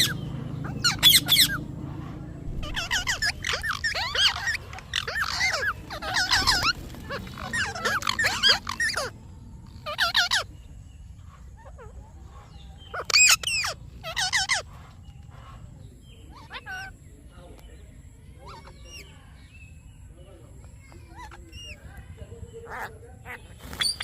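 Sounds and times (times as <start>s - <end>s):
parrot chirping and chattering: 0.0s - 17.3s, 18.3s - 24.0s.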